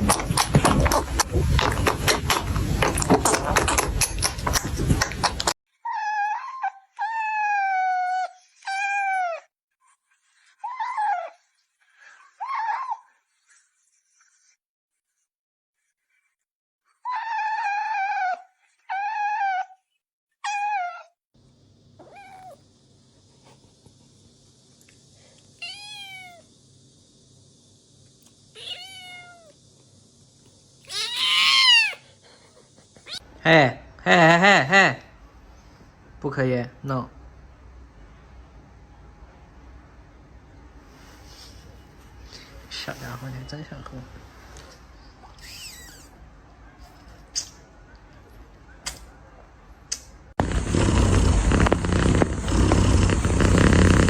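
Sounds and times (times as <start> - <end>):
kitten meowing: 22.0 - 22.6, 25.6 - 26.4, 28.6 - 29.5, 30.8 - 32.0.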